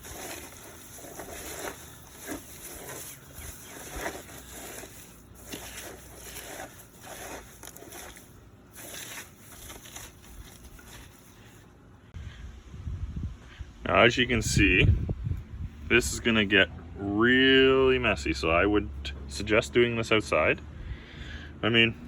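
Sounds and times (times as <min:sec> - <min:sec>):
hands squishing wet mud: 0:00.0 - 0:11.6.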